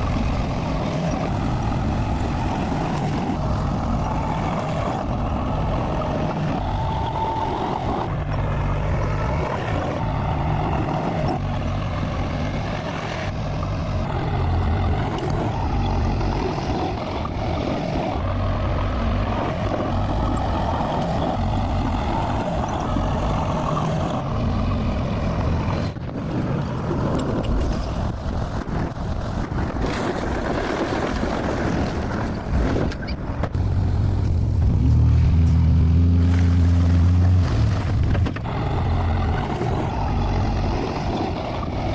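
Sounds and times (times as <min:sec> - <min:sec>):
bulldozer diesel engine: 0:00.0 - 0:41.9.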